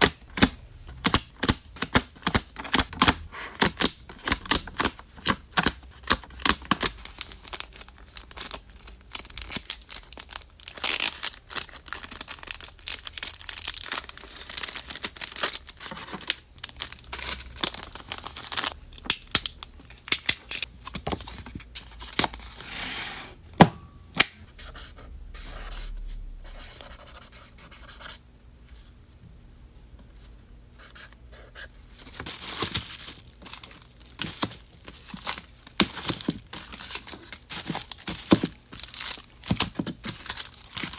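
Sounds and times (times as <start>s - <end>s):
packaging crinkling and tearing: 3.6s - 21.4s, 32.0s - 40.9s.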